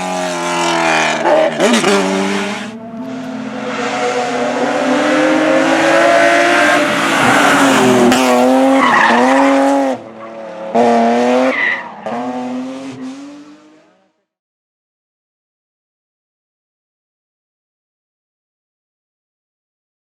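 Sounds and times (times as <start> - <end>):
car engine revving: 0.0 - 14.1.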